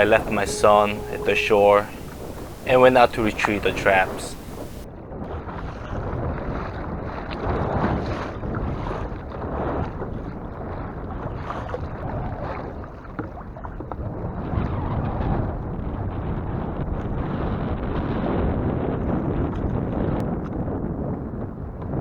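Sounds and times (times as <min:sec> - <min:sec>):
wind buffeting microphone: 0:00.0 - 0:22.0
water sloshing around kayak: 0:02.0 - 0:14.2.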